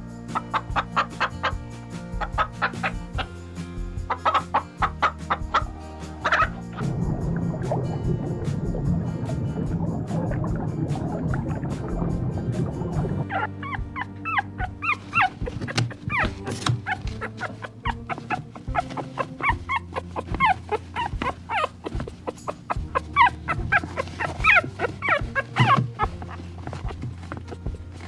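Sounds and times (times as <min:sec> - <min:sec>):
background music: 0:00.0 - 0:28.0
small animals crying: 0:04.0 - 0:06.8, 0:13.2 - 0:28.0.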